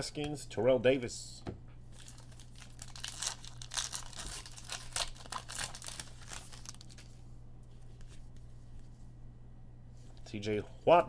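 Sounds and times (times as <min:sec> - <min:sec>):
cards and wrapping crinkling: 0:01.9 - 0:07.2.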